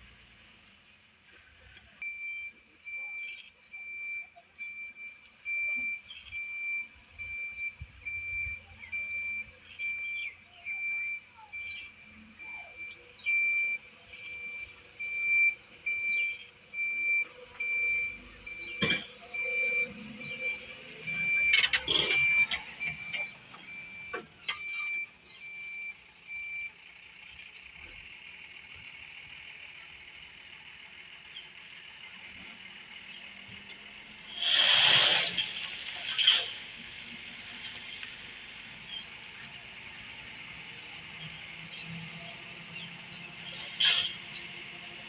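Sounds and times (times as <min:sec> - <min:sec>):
reversing alarm beeping: 0:02.0 - 0:26.9.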